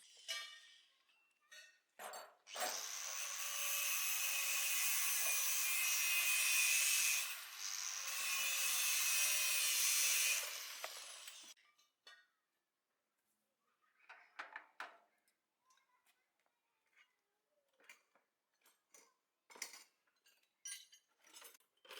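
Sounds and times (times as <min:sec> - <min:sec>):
handheld power tool running: 0:02.5 - 0:11.6.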